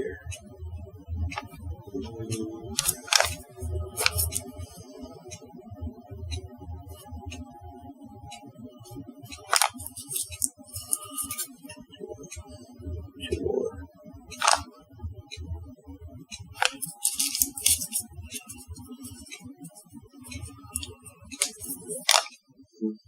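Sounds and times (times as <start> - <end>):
crinkly rustling: 2.7 - 4.6, 9.3 - 11.5, 16.4 - 22.4.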